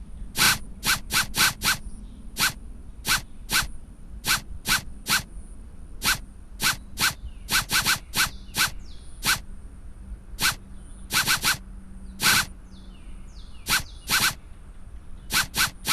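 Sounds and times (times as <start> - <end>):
hiss-like strokes with rising chirp: 0.4 - 5.3, 6.0 - 9.4, 10.4 - 11.6, 12.2 - 12.5, 13.6 - 14.4, 15.3 - 15.9.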